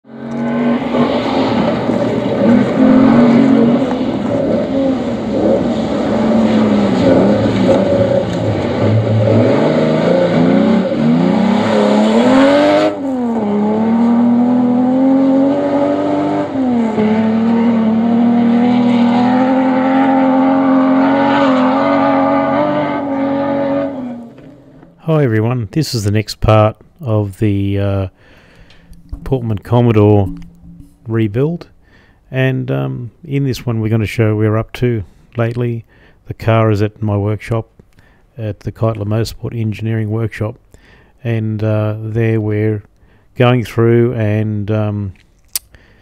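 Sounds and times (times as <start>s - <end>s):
rally car engine revving: 0.1s - 25.0s.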